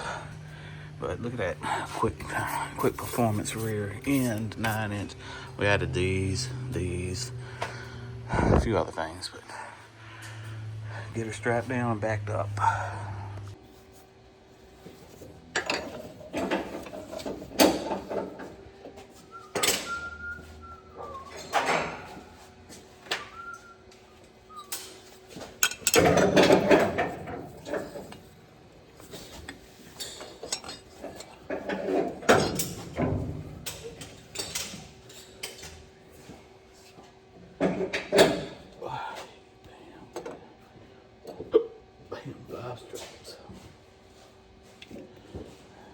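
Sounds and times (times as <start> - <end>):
metal straps and hooks clanking: 24.8 - 28.3, 29.0 - 35.8.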